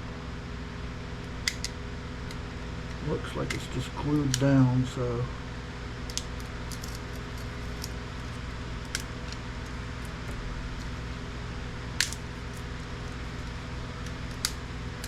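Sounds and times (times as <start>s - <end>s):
low background hum: 0.0s - 15.0s
circuit board snapping loose: 12.0s - 12.7s.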